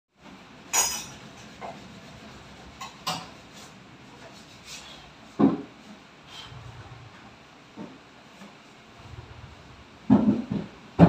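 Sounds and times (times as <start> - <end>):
sliding wooden cabinet doors: 5.4 - 8.0, 8.9 - 11.0
sharp wooden knocks: 10.1 - 11.0.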